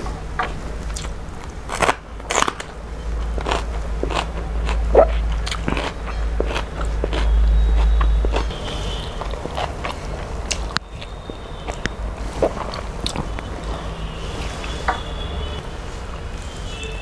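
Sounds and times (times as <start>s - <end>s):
steady low hum: 0.0s - 17.0s
person chewing crunchy food: 0.9s - 15.5s.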